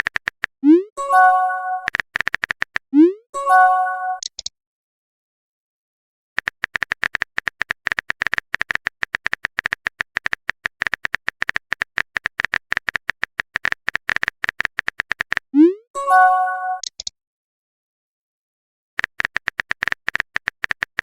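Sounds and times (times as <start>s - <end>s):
chat app typing ticks: 0.0s - 3.2s, 4.1s - 4.5s, 6.4s - 15.8s, 16.8s - 17.1s, 19.0s - 21.0s.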